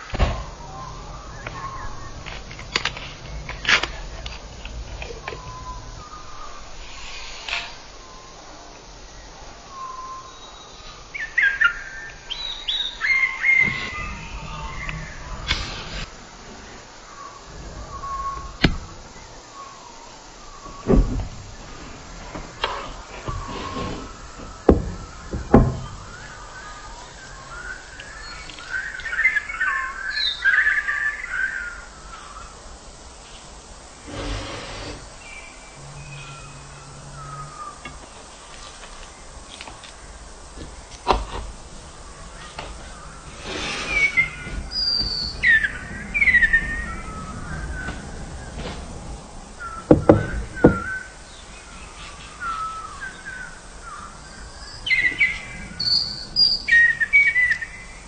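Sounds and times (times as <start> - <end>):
birds chirping: 0.0 - 58.0
sharp knocks: 24.4 - 26.0, 49.9 - 51.0.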